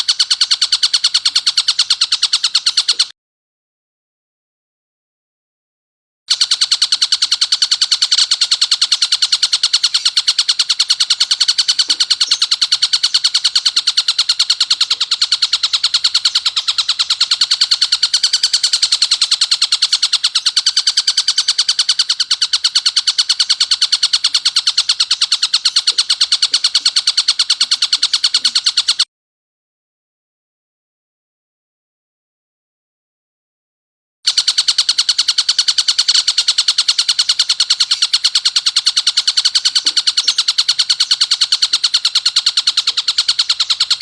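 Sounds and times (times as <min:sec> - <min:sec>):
kingfisher rattling chatter: 0:06.3 - 0:29.0, 0:34.3 - 0:44.0.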